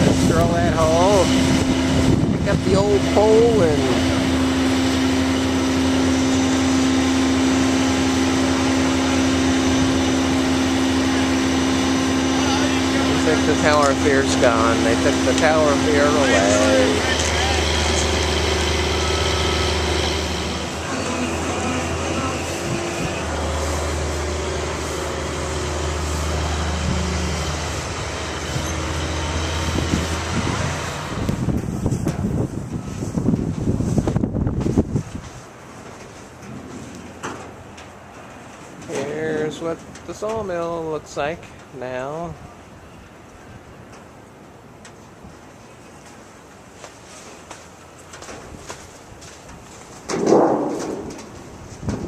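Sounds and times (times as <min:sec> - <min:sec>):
wind noise on microphone: 0:00.0 - 0:04.7, 0:21.4 - 0:24.8, 0:25.7 - 0:35.6, 0:48.4 - 0:52.0
machine drone: 0:00.0 - 0:33.6.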